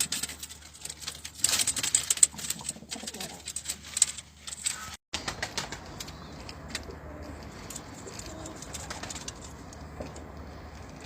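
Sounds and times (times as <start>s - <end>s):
pigeons cooing: 2.2s - 3.6s, 4.7s - 11.0s.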